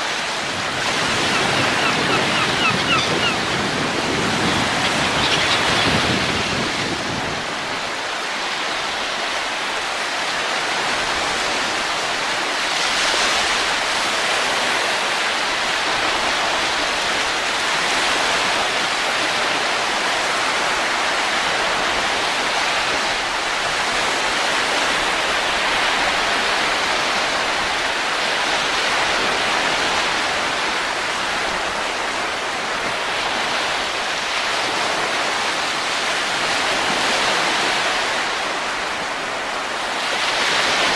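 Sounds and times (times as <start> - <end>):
rushing wind: 0.0 - 40.9.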